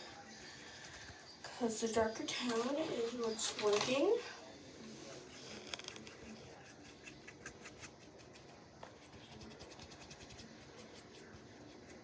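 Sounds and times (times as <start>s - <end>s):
brush scratching strokes: 4.8s - 12.0s.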